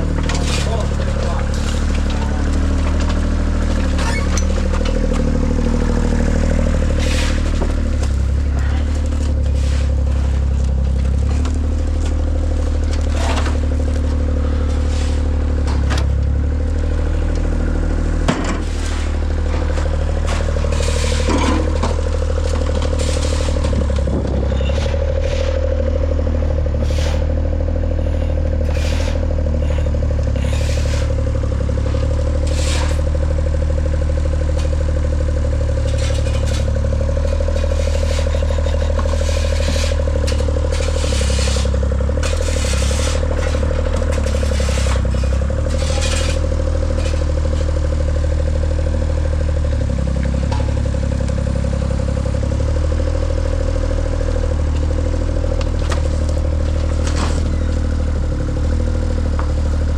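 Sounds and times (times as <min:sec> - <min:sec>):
large engine running: 0:00.0 - 0:59.9
clanks and scrapes: 0:00.1 - 0:16.2, 0:18.2 - 0:26.0, 0:26.6 - 0:33.1, 0:35.7 - 0:48.0, 0:55.8 - 0:57.8.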